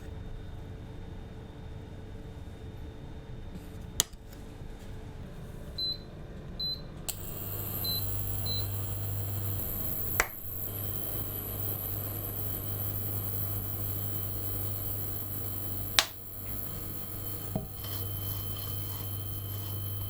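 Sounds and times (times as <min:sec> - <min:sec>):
appliance humming with high whine: 0:00.0 - 0:20.0
appliance control panel beeps: 0:05.8 - 0:20.0
sharp click: 0:10.1 - 0:10.4, 0:15.9 - 0:16.2.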